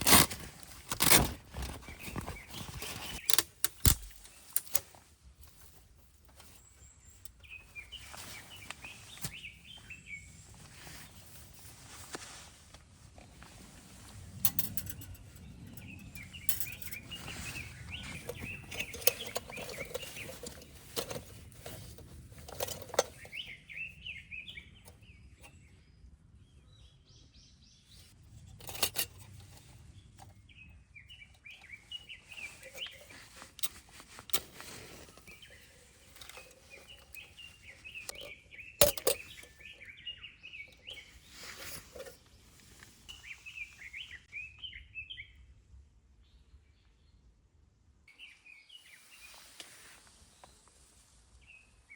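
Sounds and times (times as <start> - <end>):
rustling: 0.0 - 24.2, 31.1 - 44.2
songbirds twittering: 0.6 - 12.4, 13.2 - 45.6, 48.1 - 51.9
dry twigs snapping: 3.1 - 4.9.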